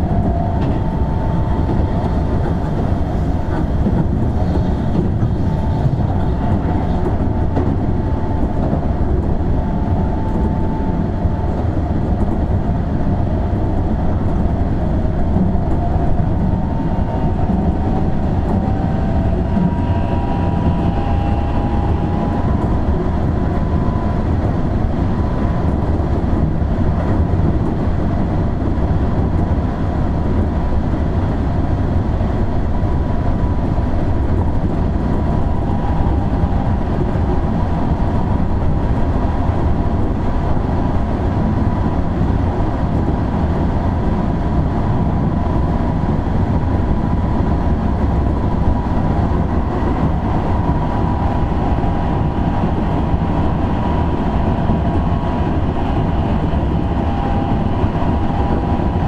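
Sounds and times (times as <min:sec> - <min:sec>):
train wheels rumbling on rails: 0:00.0 - 0:59.0
faint whining tones: 0:15.6 - 0:24.4.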